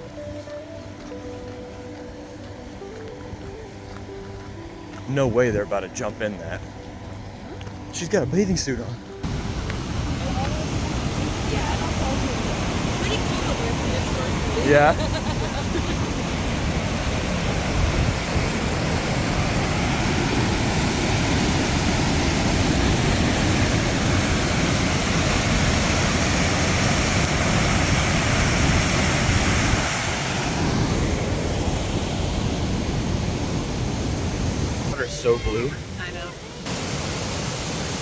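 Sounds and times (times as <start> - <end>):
waterfall rushing: 9.2 - 38.0.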